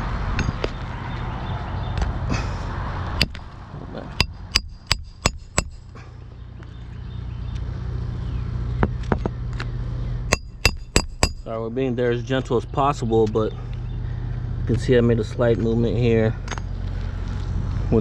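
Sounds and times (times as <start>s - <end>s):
low steady rumble: 2.3s - 18.0s
hammer striking roofing nails: 4.2s - 5.9s, 10.3s - 11.5s.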